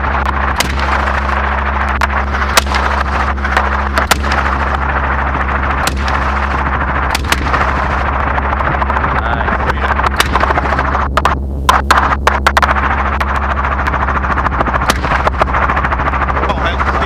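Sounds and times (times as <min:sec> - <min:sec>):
gunshots: 0:00.0 - 0:17.0
helicopter rotor and engine drone: 0:00.0 - 0:17.0.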